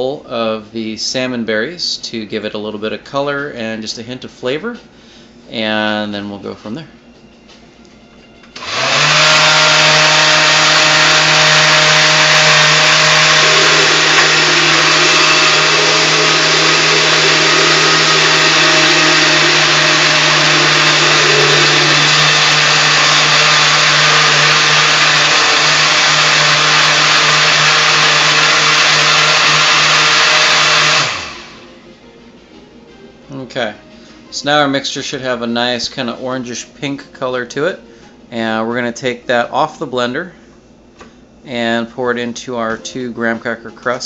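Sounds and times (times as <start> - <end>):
blender motor winding down: 8.5 - 31.7
blender running: 8.5 - 31.7.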